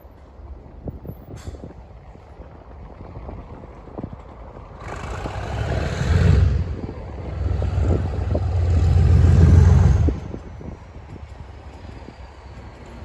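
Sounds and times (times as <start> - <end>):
diesel locomotive passing: 4.2 - 13.0.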